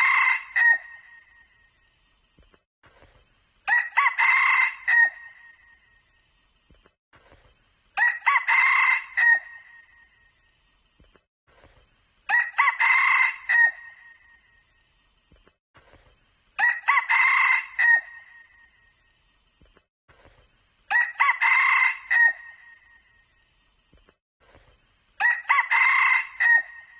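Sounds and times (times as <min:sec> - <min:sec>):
junglefowl crowing: 0:00.0 - 0:01.2, 0:03.7 - 0:05.6, 0:16.6 - 0:18.5, 0:20.9 - 0:22.9, 0:25.2 - 0:26.9.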